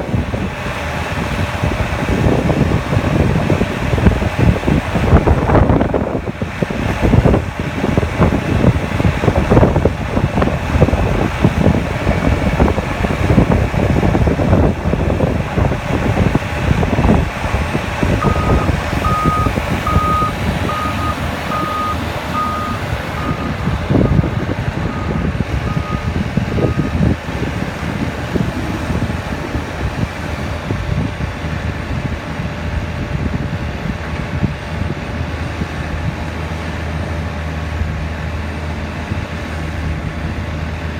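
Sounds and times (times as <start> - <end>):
diesel engine working hard: 0.0 - 40.9
reverse alarm beeping: 18.2 - 24.2, 24.9 - 27.1.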